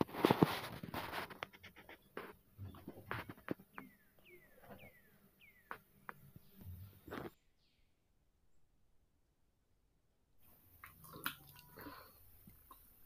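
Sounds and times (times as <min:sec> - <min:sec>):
falling bird chirps: 0:01.9 - 0:08.1.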